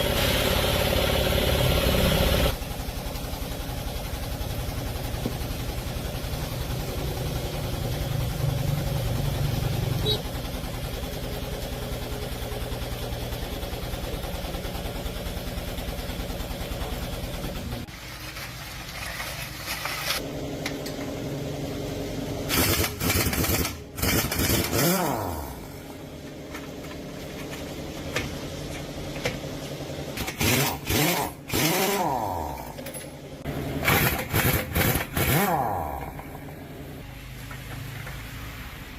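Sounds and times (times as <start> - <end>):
engine running: 0.0 - 38.9
engine revving: 22.3 - 26.0, 30.2 - 32.8, 33.4 - 37.1.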